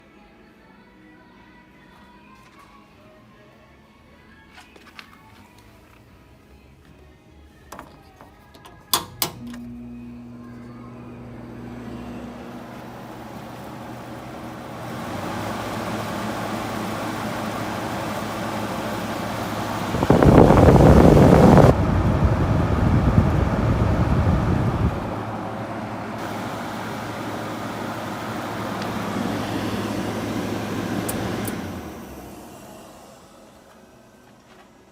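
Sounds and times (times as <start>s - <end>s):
air conditioner motor hum: 8.0s - 34.9s
rush of air: 19.9s - 25.5s
air conditioner switch clicks: 31.0s - 31.7s.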